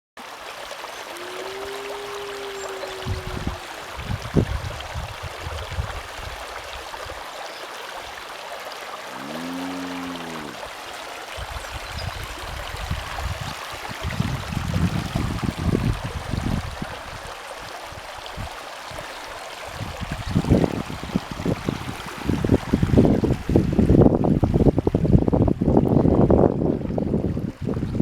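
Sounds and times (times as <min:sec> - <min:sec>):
rainwater rushing: 0:00.4 - 0:28.0
wind buffeting microphone: 0:01.6 - 0:07.2, 0:11.4 - 0:17.3, 0:17.9 - 0:28.0.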